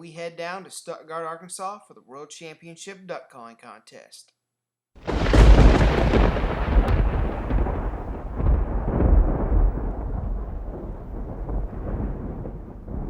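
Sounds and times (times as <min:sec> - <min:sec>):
thunder rolling: 0:05.0 - 0:13.0.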